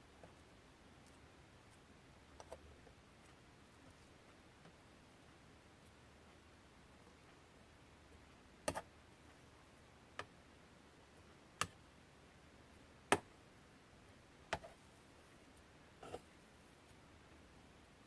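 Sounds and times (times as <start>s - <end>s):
faint room hiss: 0.0s - 18.0s.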